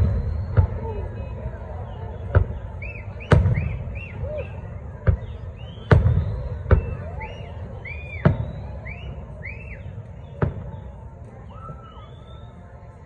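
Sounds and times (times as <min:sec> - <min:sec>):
firework shells booming: 0:02.2 - 0:04.2, 0:05.1 - 0:07.2.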